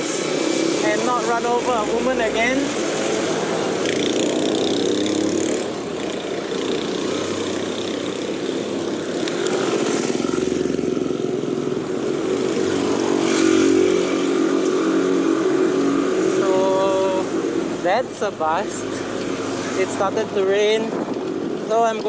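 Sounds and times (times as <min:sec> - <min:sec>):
motorcycle engine running: 0:00.0 - 0:17.3
road noise: 0:00.0 - 0:22.0.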